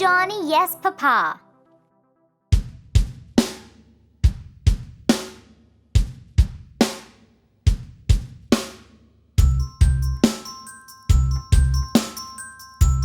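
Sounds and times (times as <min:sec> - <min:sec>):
bass: 0:09.4 - 0:10.3, 0:11.1 - 0:13.0
chiming tones: 0:09.4 - 0:13.0.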